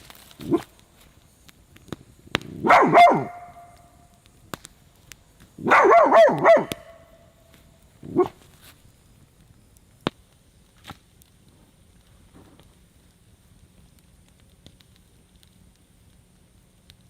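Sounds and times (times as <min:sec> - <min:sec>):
dog barking: 0:02.6 - 0:03.8, 0:05.6 - 0:07.0, 0:08.1 - 0:08.4.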